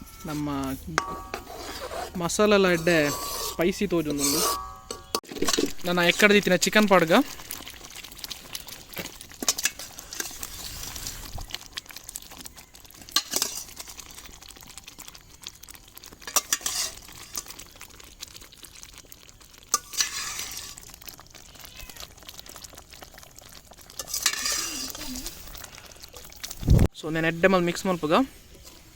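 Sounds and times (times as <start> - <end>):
frying hiss: 0.0 - 28.9
spoon scraping and clinking pan: 0.2 - 6.3, 9.4 - 10.9, 13.1 - 13.9, 16.3 - 17.5, 19.7 - 20.8, 24.0 - 25.3.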